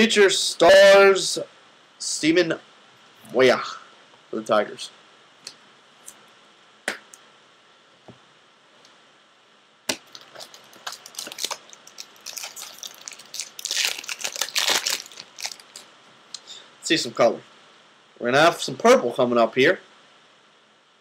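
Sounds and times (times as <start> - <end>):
foil wrapper tearing and crinkling: 9.9 - 15.9.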